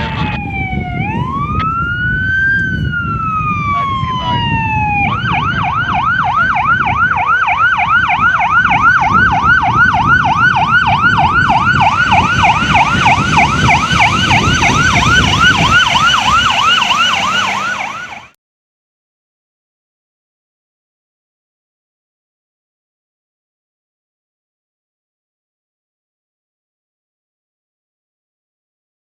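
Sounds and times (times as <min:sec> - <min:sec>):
fire engine siren yelping: 0:00.0 - 0:18.4
truck engine and road rumble: 0:00.0 - 0:18.4.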